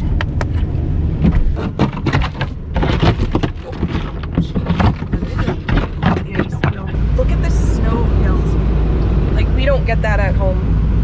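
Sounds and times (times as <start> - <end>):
low engine rumble: 0.0 - 11.0
ice scraper scraping window: 1.6 - 7.0.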